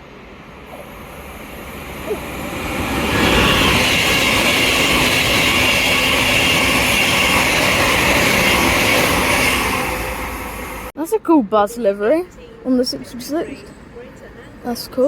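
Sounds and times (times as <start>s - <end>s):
train wheels rushing on rail: 0.0s - 10.9s.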